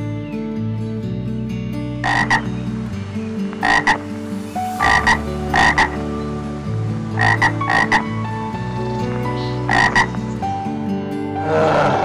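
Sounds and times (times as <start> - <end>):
soft background music: 0.0 - 12.0
short animal calls: 9.4 - 10.1.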